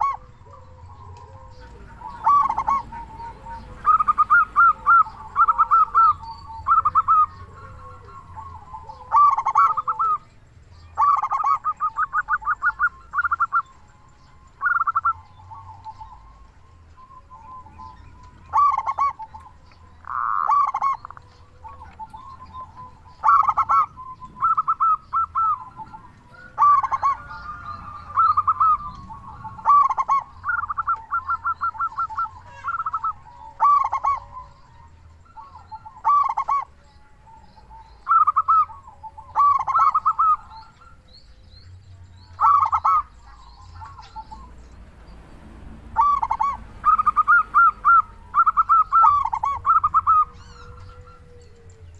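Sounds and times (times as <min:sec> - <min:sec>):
dove cooing: 0:00.0 - 0:51.9.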